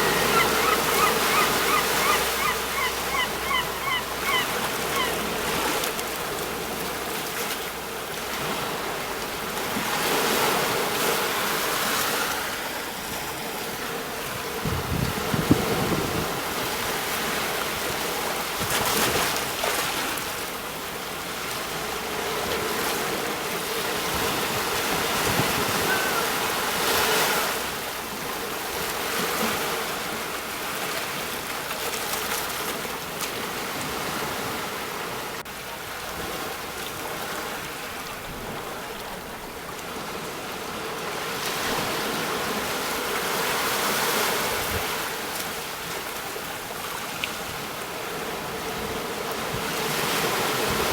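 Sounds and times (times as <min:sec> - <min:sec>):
sea waves breaking on shore: 0:00.0 - 0:50.9.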